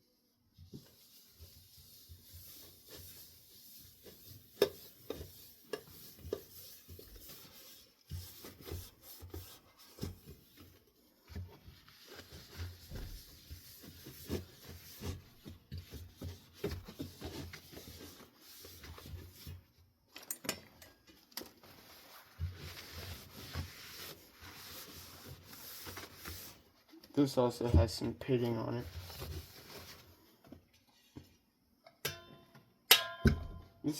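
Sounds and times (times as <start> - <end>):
rubbing: 21.6 - 26.8.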